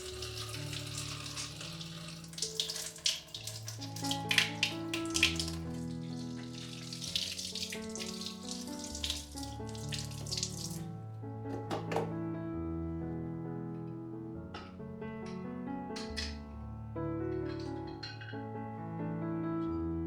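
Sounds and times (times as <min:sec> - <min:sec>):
tap water running into sink: 0:00.0 - 0:10.9, 0:11.5 - 0:12.1
soft background music: 0:00.0 - 0:20.0.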